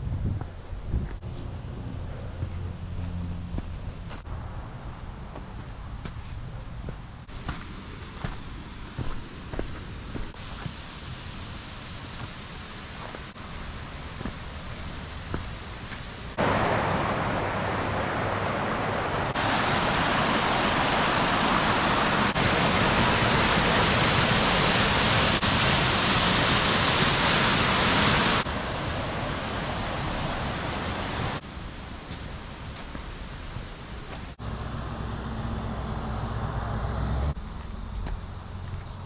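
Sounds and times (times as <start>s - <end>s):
waterfall rushing: 10.3s - 31.4s.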